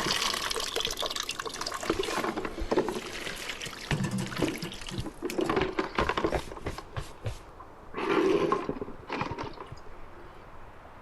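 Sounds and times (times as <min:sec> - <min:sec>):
water splashing and running: 0:00.0 - 0:06.8.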